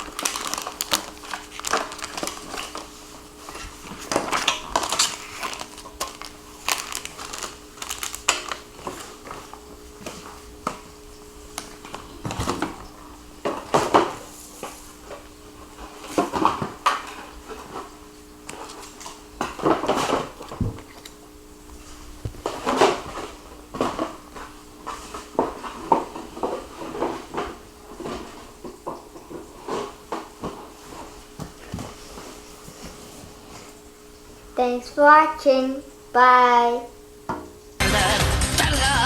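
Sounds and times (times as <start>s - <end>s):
plastic parts and packaging handled: 0.0s - 10.9s, 21.8s - 33.6s
faint steady hum: 0.0s - 39.0s.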